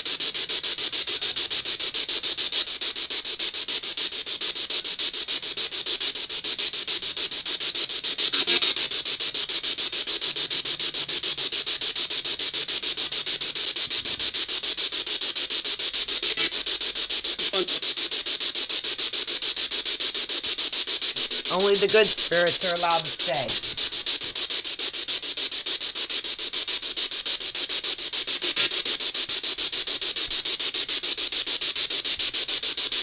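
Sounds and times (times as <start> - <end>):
voice-like radio fragments: 21.2 - 23.8
pulsing radio static: 21.2 - 24.3.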